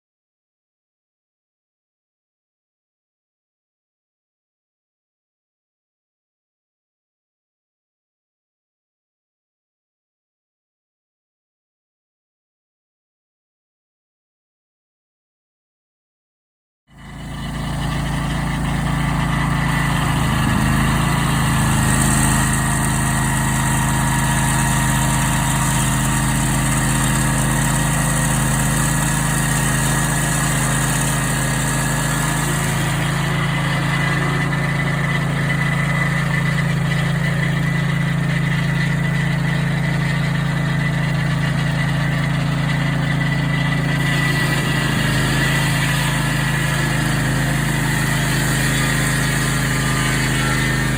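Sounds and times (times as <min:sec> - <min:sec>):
sawmill engine running: 0:17.0 - 0:50.9.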